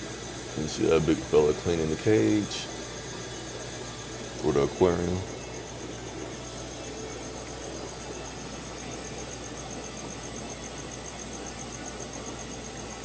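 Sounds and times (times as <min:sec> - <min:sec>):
aquarium equipment hum and hiss: 0:00.0 - 0:13.0
high-pitched pulsing: 0:04.4 - 0:05.8.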